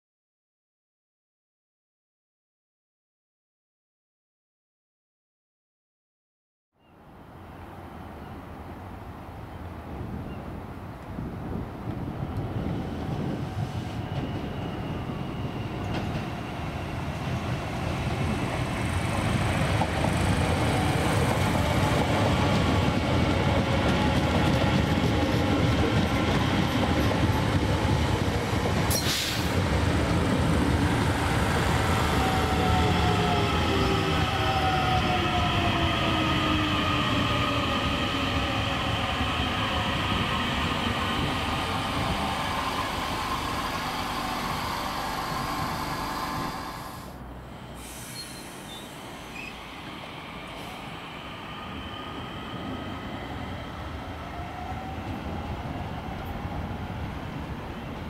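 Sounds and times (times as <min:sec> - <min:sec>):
train running on rails: 0:07.4 - 0:58.0
traction motor whine: 0:41.6 - 0:47.1.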